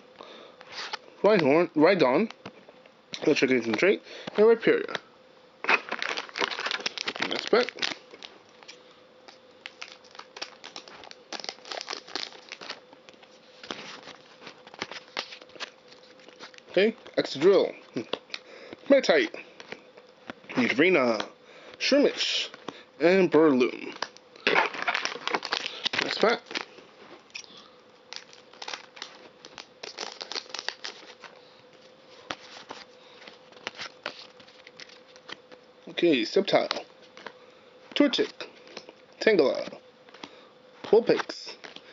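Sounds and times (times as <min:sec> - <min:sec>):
foil wrapper crinkling and tearing: 0:05.6 - 0:18.4, 0:23.6 - 0:37.4.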